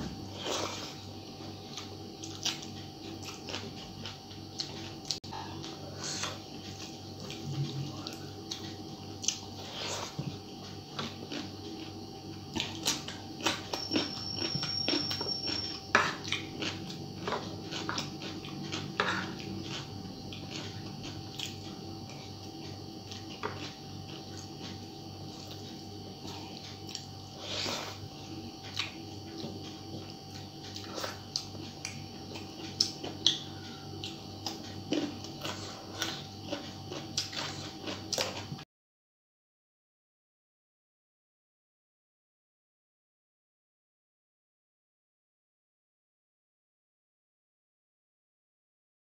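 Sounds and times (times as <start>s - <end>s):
faint hum: 0.0s - 38.6s
wet chewing: 1.7s - 38.6s.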